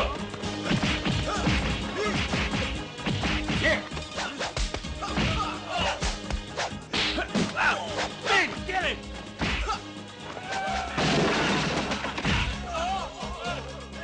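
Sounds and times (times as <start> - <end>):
dramatic film score: 0.0 - 14.0
punch and kick impacts: 0.6 - 7.6, 9.4 - 9.8.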